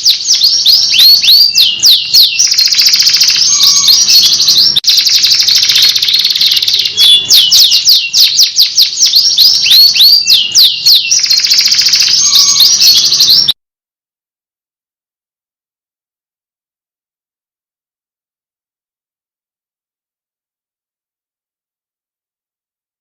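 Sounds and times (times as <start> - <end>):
canary singing trills: 0.0 - 13.6.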